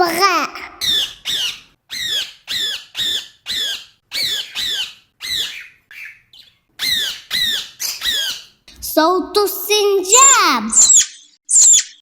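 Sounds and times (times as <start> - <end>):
parrot squawking: 0.8 - 8.6, 10.7 - 12.0.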